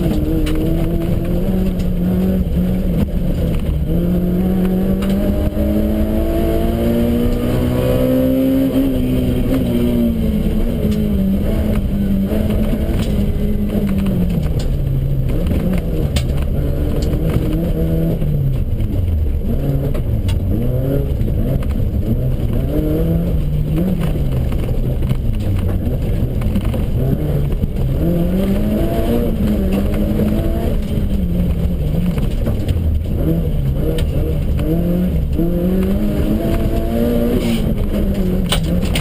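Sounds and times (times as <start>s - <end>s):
car engine revving: 0.0s - 39.0s
knocks and rattles: 10.7s - 39.0s.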